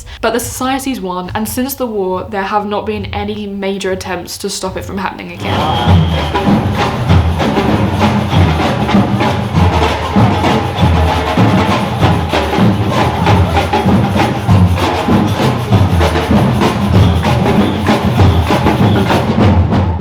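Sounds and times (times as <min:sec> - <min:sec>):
drum and percussion music: 0:04.7 - 0:20.0
sharp clacking strokes: 0:05.4 - 0:19.5.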